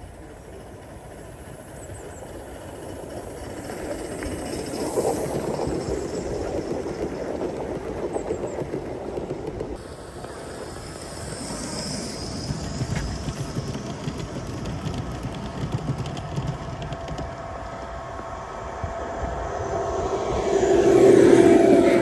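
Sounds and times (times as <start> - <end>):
model steam train running: 0.0 - 22.0.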